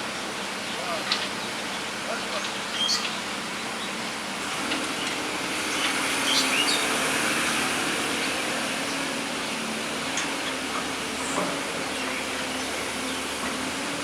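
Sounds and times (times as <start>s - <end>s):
excavator diesel engine running: 3.2s - 14.0s.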